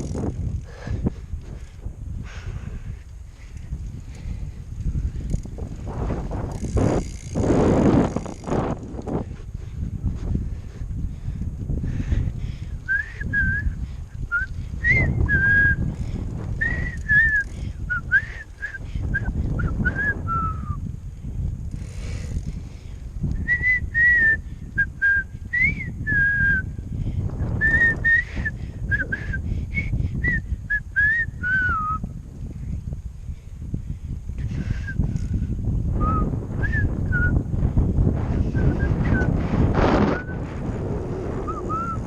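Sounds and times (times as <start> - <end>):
wind rumble on microphone: 0.0 - 42.0
person whistling a tune: 12.9 - 15.8, 16.6 - 20.8, 23.4 - 26.7, 27.6 - 32.1, 36.0 - 37.4, 41.5 - 42.0.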